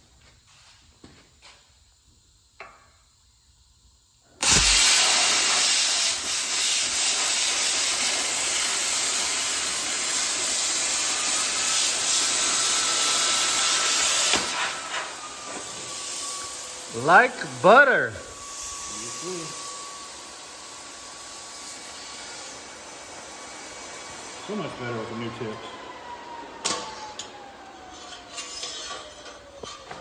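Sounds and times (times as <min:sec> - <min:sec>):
plasma cutter arc hissing: 0:04.4 - 0:24.4.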